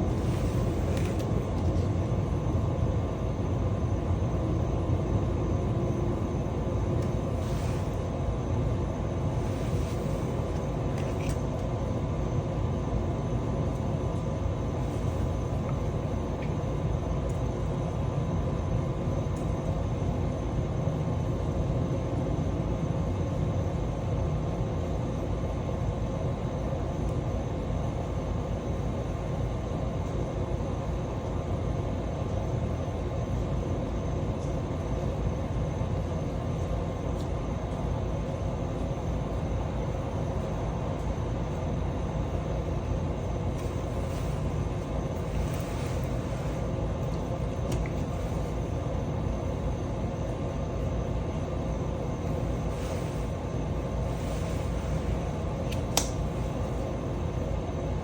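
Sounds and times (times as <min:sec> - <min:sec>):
faint hum: 0:00.0 - 0:58.0.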